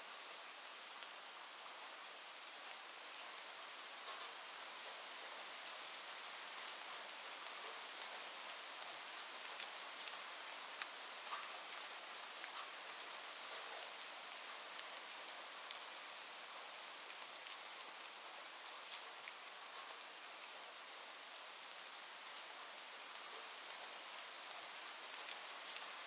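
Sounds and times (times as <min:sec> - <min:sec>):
raindrop ticks: 0:10.8 - 0:11.8, 0:16.8 - 0:17.7.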